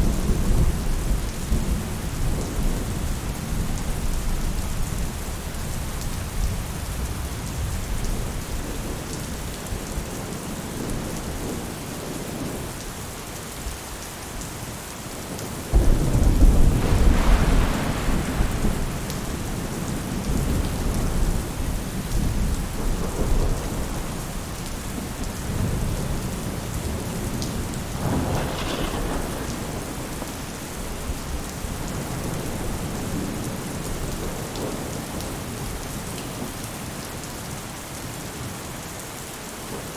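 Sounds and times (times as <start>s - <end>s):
rain falling on a roof: 0.0s - 39.9s
thunder rumbling: 15.2s - 35.8s.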